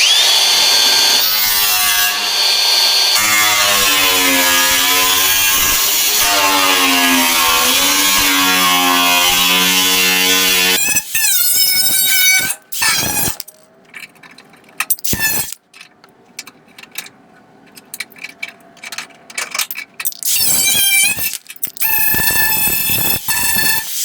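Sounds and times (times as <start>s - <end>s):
electric grinder whining on sheet metal: 0.0s - 11.2s, 20.3s - 24.0s
handling clicks and knocks: 13.4s - 20.3s.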